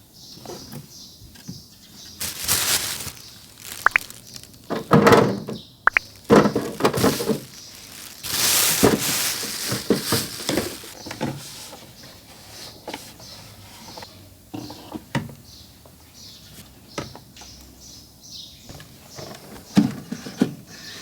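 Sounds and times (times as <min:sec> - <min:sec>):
rustling: 0:02.0 - 0:11.8
objects knocking and thudding: 0:02.2 - 0:11.3.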